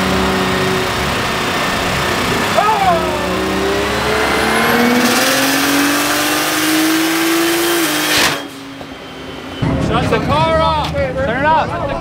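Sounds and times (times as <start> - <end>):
car engine revving hard: 0.0 - 9.5.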